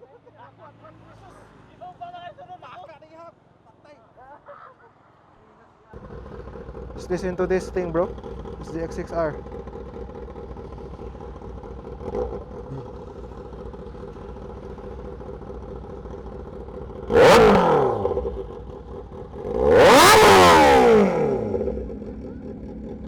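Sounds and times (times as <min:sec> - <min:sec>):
motorcycle engine idling: 0:06.0 - 0:23.0
motorcycle engine revving: 0:06.0 - 0:23.0.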